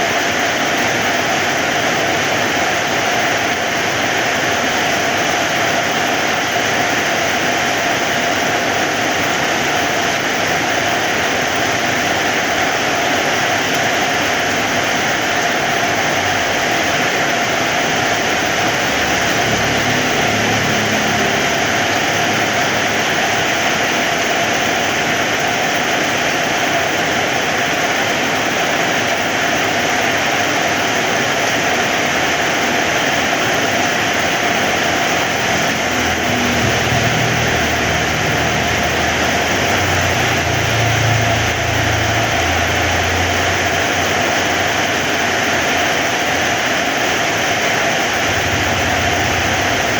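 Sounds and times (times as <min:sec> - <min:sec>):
heavy rain: 0:00.0 - 0:49.9
low rumble: 0:34.3 - 0:44.2, 0:48.1 - 0:49.9.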